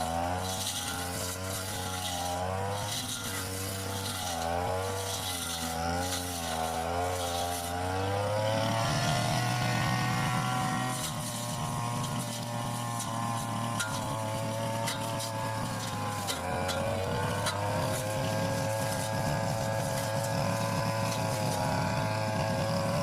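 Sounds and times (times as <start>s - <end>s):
brush cutter engine: 0.0s - 23.0s.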